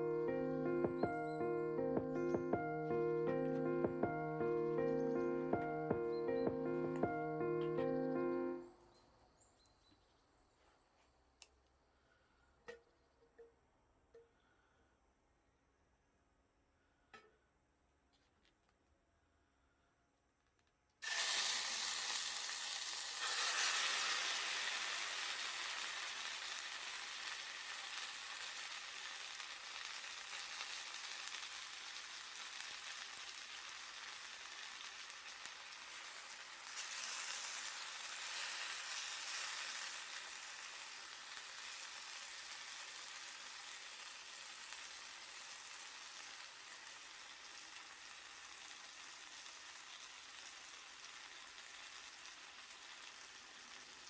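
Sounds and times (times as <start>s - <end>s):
chicken sizzling on a grill: 21.0s - 54.0s.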